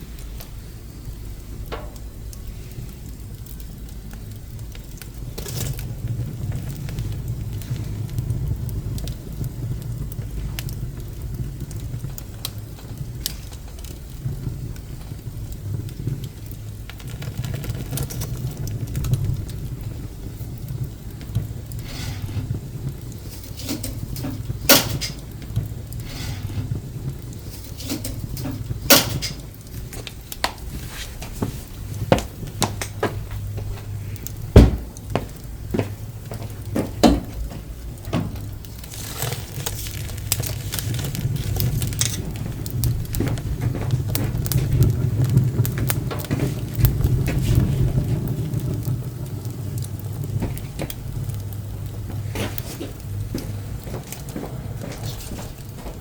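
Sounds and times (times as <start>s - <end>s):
fire crackling: 0.0s - 56.0s
fire rushing in wood stove: 0.0s - 56.0s
wood popping: 0.0s - 56.0s.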